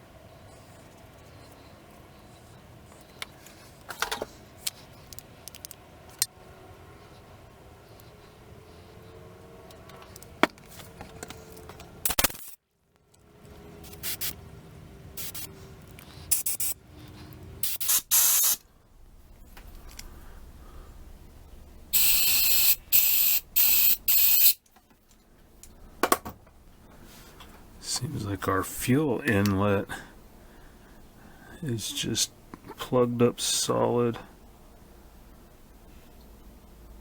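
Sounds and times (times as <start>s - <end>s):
spray blasts: 13.8s - 14.4s, 15.2s - 15.5s, 16.3s - 16.8s, 17.6s - 18.6s, 21.9s - 24.6s.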